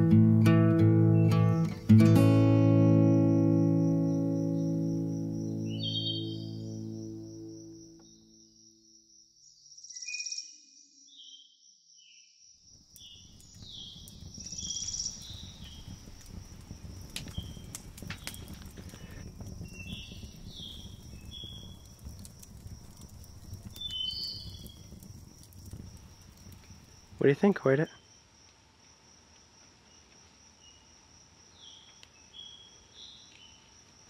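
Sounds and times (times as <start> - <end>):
fire crackling and popping: 0.2 - 7.2, 12.7 - 30.6
high insect trill: 1.3 - 11.0, 12.3 - 34.0
high bird-like chirps: 5.5 - 6.9, 23.8 - 24.7.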